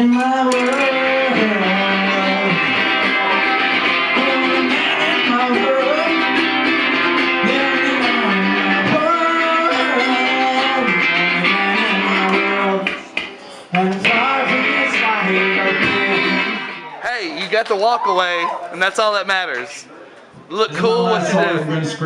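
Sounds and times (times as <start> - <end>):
rock music with electric guitar: 0.0 - 13.2, 13.8 - 17.0
person singing: 0.0 - 16.9.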